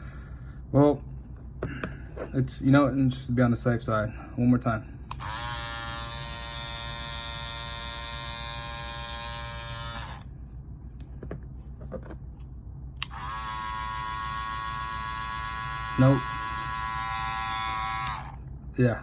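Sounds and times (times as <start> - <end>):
hair clippers buzzing: 5.1 - 10.2, 13.0 - 18.4.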